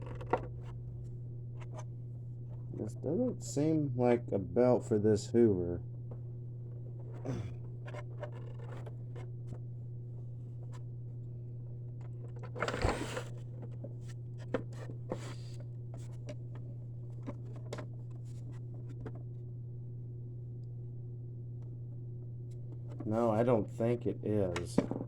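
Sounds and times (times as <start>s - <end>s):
steady low hum: 0.0s - 25.0s
belt scraping on plastic: 7.0s - 9.3s, 12.2s - 19.2s.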